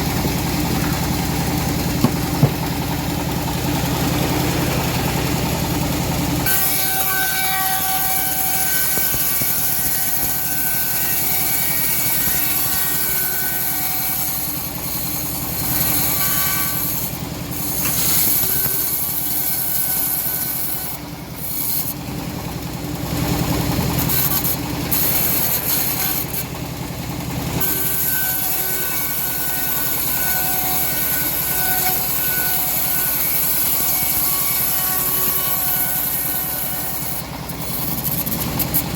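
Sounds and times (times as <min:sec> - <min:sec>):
bandsaw mill drone: 0:00.0 - 0:38.9
saw blade hissing in wood: 0:06.4 - 0:22.0.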